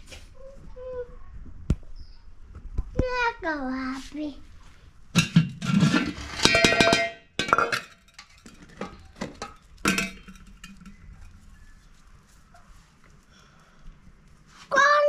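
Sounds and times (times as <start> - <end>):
metal pot and lid clanking: 5.2 - 11.3.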